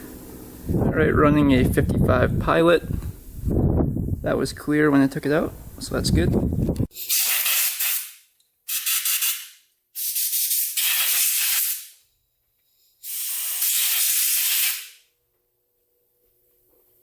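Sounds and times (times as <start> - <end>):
pressurised spray hissing: 13.0 - 15.0.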